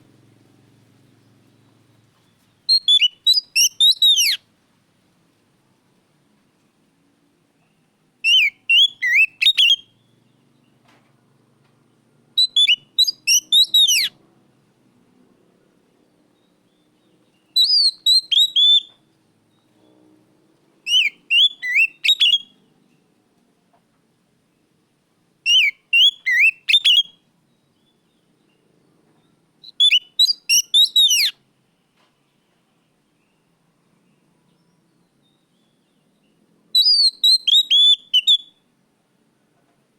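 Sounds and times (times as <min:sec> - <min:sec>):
bird singing whistled phrases: 0:02.7 - 0:04.4, 0:08.2 - 0:10.1, 0:12.4 - 0:14.1, 0:17.5 - 0:19.0, 0:20.9 - 0:22.6, 0:25.5 - 0:27.2, 0:29.6 - 0:31.4, 0:36.8 - 0:38.6.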